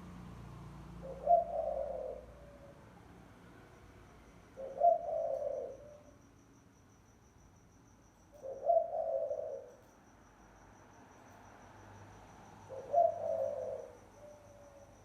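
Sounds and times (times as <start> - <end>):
cricket trill: 0.0 - 15.0
dove cooing: 1.0 - 3.1, 4.5 - 6.1, 8.4 - 9.8, 12.7 - 15.0.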